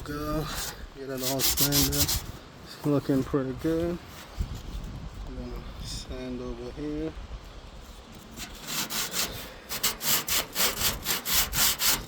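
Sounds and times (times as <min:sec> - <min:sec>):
sandpaper scrubbing rusted metal: 0:00.4 - 0:02.4, 0:07.8 - 0:12.0.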